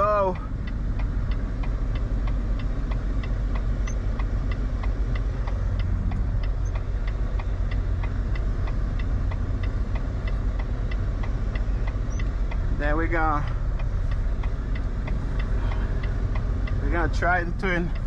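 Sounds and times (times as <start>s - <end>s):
diesel truck engine running: 0.0s - 18.0s
light ticking: 0.0s - 18.0s.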